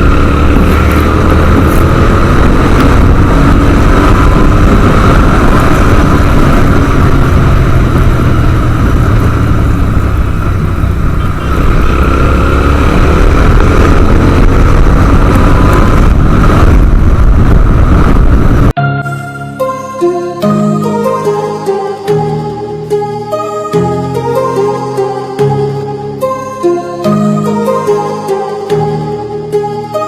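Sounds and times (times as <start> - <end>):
motorcycle engine: 0.0 - 18.8
wind rush on microphone: 0.0 - 18.8.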